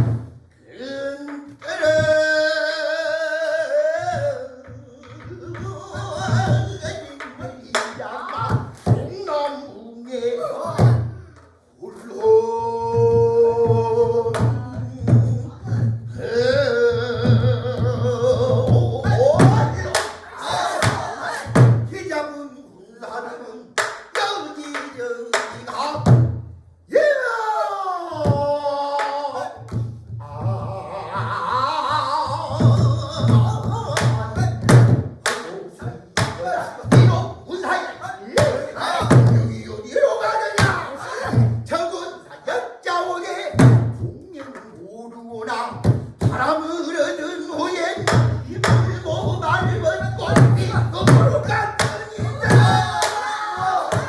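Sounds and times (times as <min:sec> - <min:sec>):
person singing with vibrato: 0:00.6 - 0:26.1, 0:26.9 - 0:34.7, 0:35.3 - 0:54.0
low barrel drum beats: 0:03.9 - 0:07.8, 0:12.6 - 0:22.0, 0:32.2 - 0:37.5, 0:38.4 - 0:39.8, 0:43.6 - 0:44.2, 0:48.0 - 0:54.0
solo voice singing with vibrato: 0:12.1 - 0:25.8, 0:45.5 - 0:54.0.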